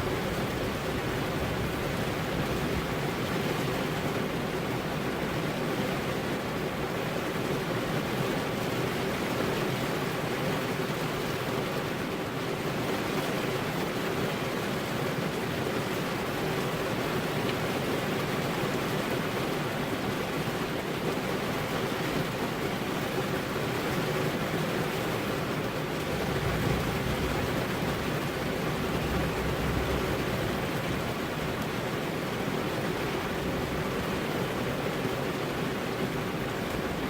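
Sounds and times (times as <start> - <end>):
rain pattering on car windows: 0.0 - 37.0
low rumble of thunder: 26.0 - 32.0.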